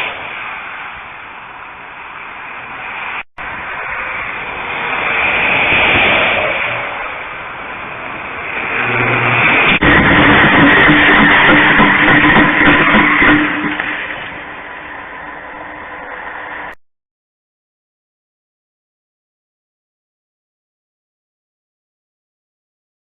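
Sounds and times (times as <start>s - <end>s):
car engine: 0.0s - 16.8s
road noise: 0.0s - 16.8s.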